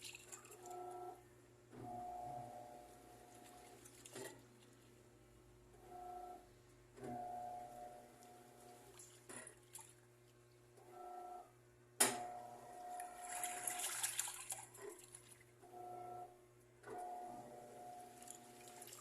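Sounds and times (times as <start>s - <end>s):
washing machine motor humming: 0.0s - 9.9s, 12.1s - 19.0s
water swishing: 12.9s - 15.5s, 18.0s - 19.0s.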